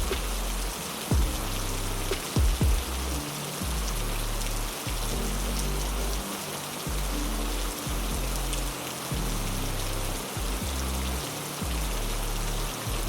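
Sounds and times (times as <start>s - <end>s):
loud low thumps: 0.0s - 4.3s
heavy rain: 0.0s - 13.0s
low droning tone: 0.0s - 13.0s.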